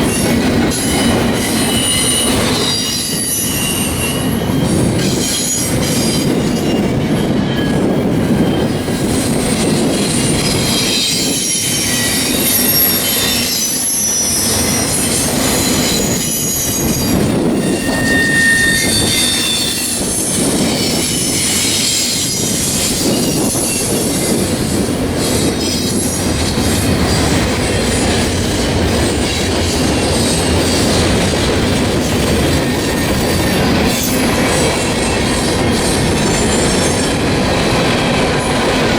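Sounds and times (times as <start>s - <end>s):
train cars rumbling: 0.0s - 38.9s
wheel flanges squealing: 10.1s - 24.5s.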